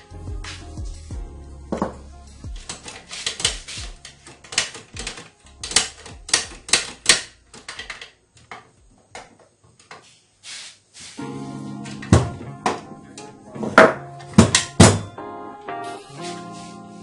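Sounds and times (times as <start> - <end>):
metal parts clicking and clacking: 2.6 - 8.6.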